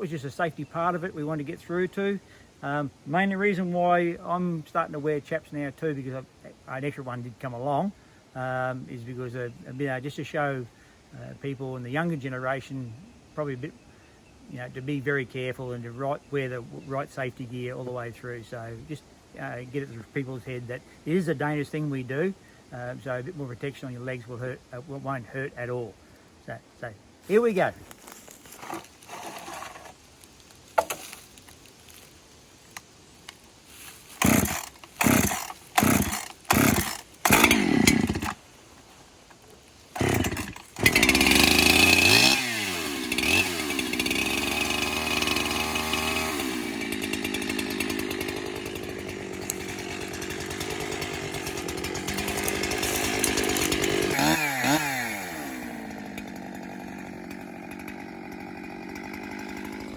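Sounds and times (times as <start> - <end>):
chainsaw starting and running: 27.3 - 30.0, 30.8 - 31.2, 33.8 - 38.4, 39.9 - 59.9.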